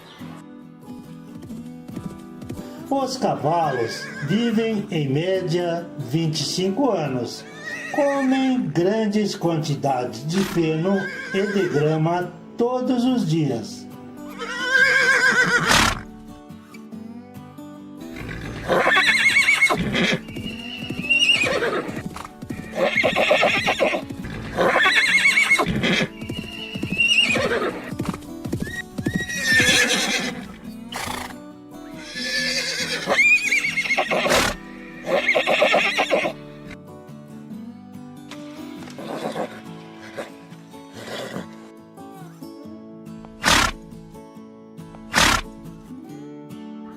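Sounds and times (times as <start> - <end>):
horse neighing: 3.7 - 4.3, 7.5 - 8.3, 10.4 - 11.8, 14.3 - 16.1, 18.1 - 28.0, 28.6 - 31.4, 32.0 - 36.4, 38.9 - 41.7, 43.4 - 43.8, 45.1 - 45.5.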